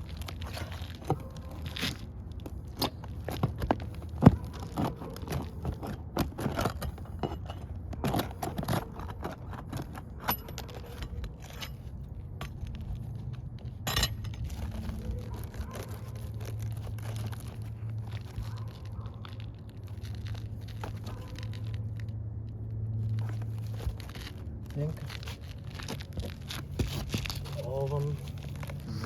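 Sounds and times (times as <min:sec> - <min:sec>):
shingles scraping and crackling: 0:00.0 - 0:22.2
small metal clinks: 0:13.8 - 0:14.9.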